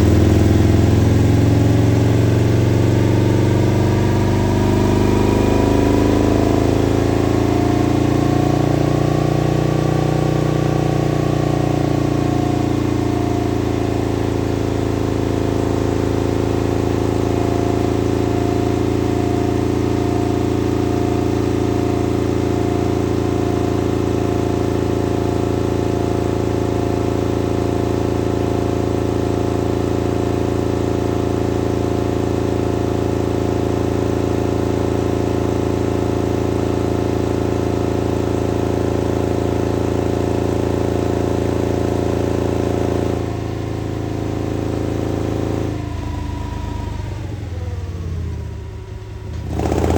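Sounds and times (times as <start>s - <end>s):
motorcycle engine idling: 43.4s - 49.9s.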